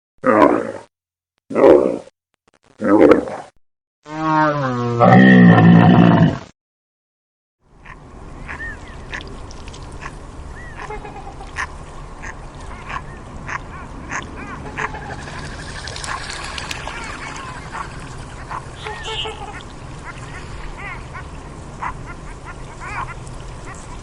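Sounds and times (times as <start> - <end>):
ducks quacking: 7.8 - 24.0.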